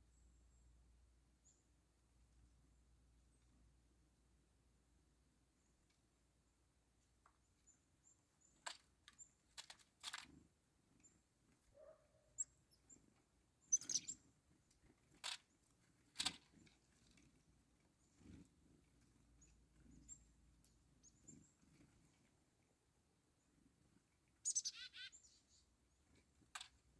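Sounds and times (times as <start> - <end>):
short high bird chirps: 13.7 - 14.2, 24.4 - 25.6.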